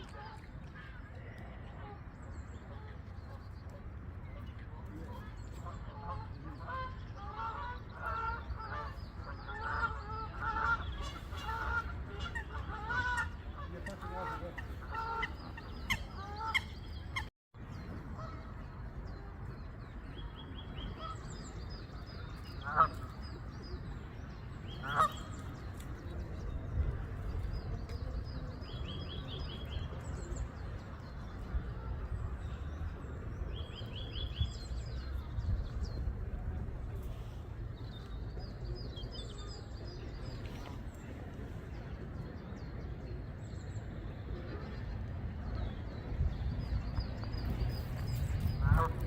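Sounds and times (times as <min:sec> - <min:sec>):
flock of birds calling: 0:24.8 - 0:25.5
wind on microphone: 0:24.9 - 0:38.8, 0:44.3 - 0:49.0.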